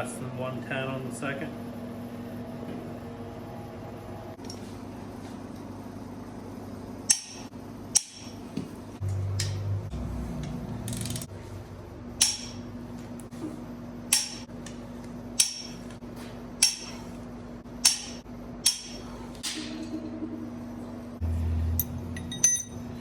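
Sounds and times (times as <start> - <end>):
steady low hum: 0.0 - 23.0
torque wrench clicks: 10.9 - 11.3.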